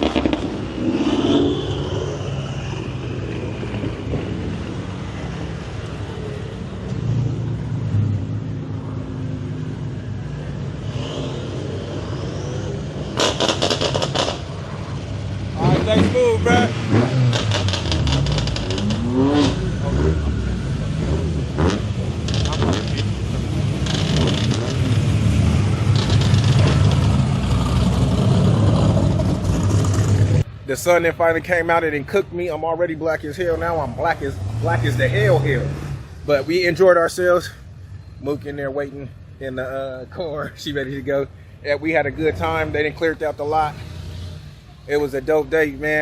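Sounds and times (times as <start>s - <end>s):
sharp crackles: 0.0s - 1.7s, 17.3s - 19.1s
car engine rumbling: 0.0s - 46.0s.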